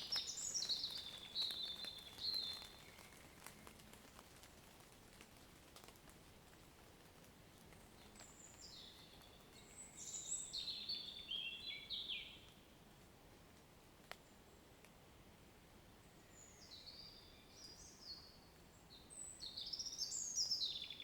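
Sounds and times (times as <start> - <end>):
songbird singing: 0.0 - 4.2, 7.6 - 12.9, 15.7 - 21.0
water dripping from foliage: 0.0 - 12.6.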